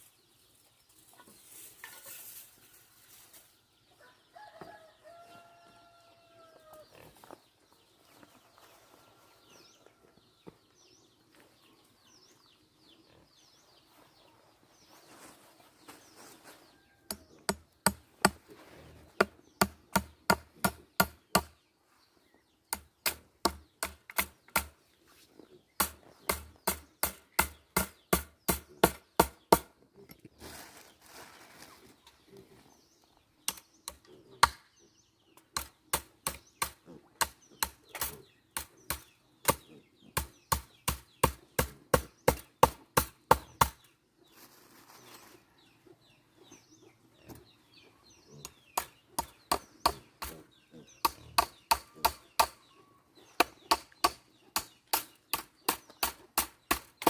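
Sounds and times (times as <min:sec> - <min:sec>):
small birds chirping: 0:00.0 - 0:57.0
chickens clucking: 0:00.5 - 0:05.1.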